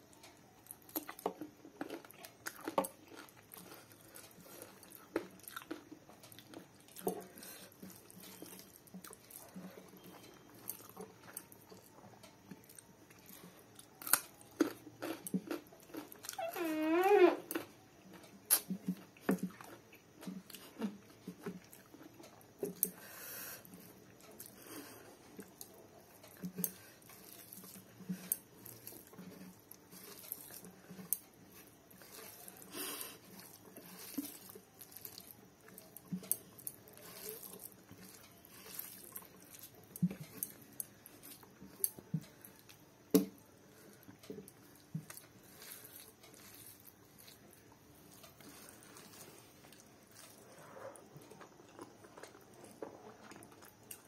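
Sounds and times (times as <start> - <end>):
person chewing food: 0.1 - 54.0
wet mouth clicks and smacks: 18.5 - 18.8
fingers squishing rice: 24.4 - 54.0.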